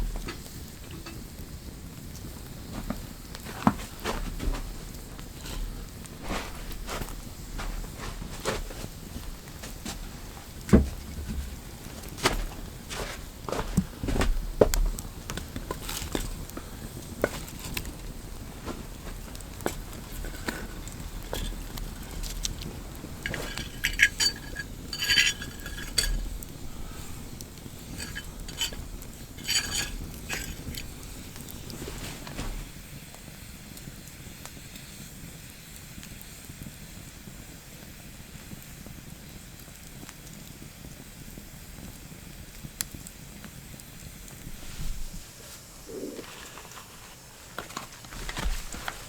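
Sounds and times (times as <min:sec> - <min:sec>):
faint hiss: 0:00.0 - 0:49.0
metal cookware clinking and scraping: 0:20.2 - 0:32.4.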